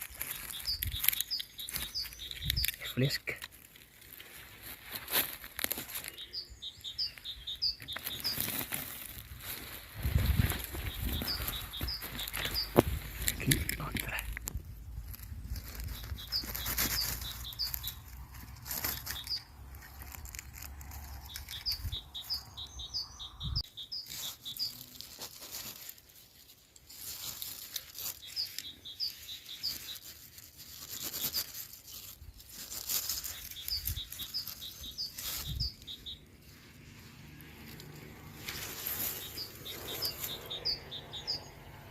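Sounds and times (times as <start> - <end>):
rustling and crackling: 0.0 - 22.4, 24.0 - 41.4
high-pitched chirping: 0.1 - 3.1, 5.9 - 8.7, 10.0 - 13.5, 15.6 - 18.1, 21.2 - 24.9, 28.0 - 36.6, 38.5 - 41.6.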